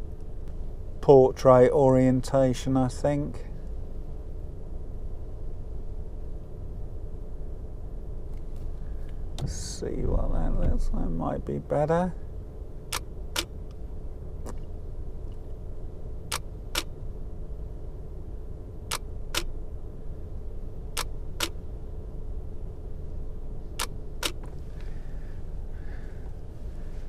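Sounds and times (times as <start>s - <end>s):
steady low rumble: 0.0s - 27.0s
camera shutter double clicks: 12.9s - 13.5s, 16.3s - 16.9s, 18.9s - 19.5s, 21.0s - 21.6s, 23.8s - 24.4s.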